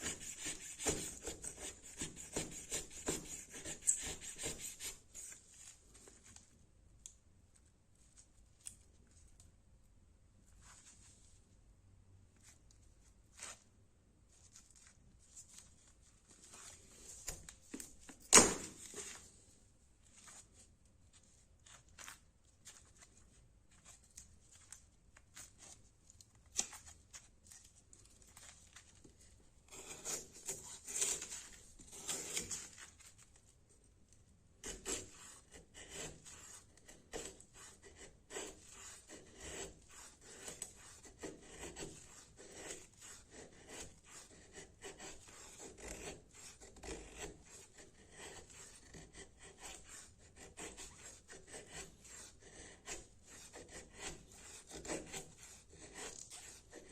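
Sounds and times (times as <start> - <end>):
knife scraping wood: 0.0 - 5.4, 29.7 - 33.1, 34.6 - 56.9.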